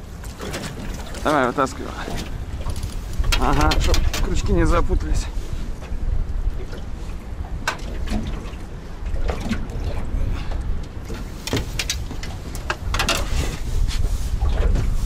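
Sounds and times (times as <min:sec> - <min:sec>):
waves splashing against hull: 0:00.0 - 0:15.0
wind rumbling on microphone: 0:00.0 - 0:15.0
clicks and knocks: 0:02.7 - 0:04.4.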